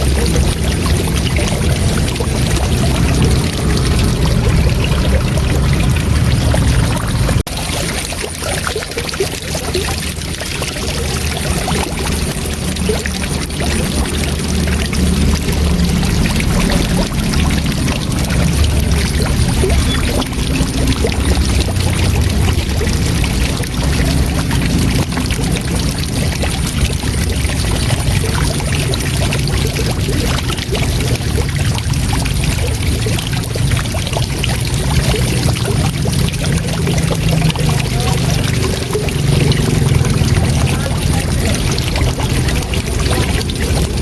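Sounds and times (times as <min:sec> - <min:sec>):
deep rumble: 0:00.0 - 0:07.6, 0:10.1 - 0:44.0
waterfall rushing: 0:00.0 - 0:44.0.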